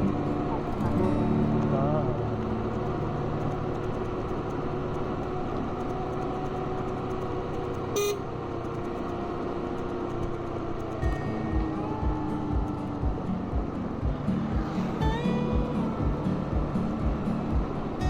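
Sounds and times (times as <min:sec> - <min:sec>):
motorbike engine running: 0:00.0 - 0:18.0
wind and road noise: 0:00.0 - 0:18.0
short horn toot: 0:08.0 - 0:08.2.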